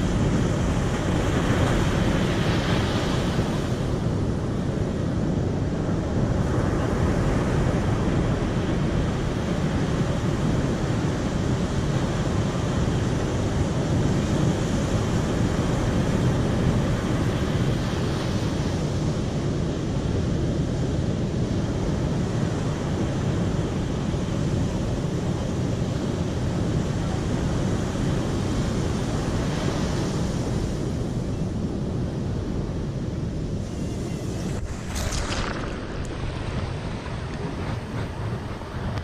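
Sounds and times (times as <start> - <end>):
river water rushing: 33.8 - 38.7.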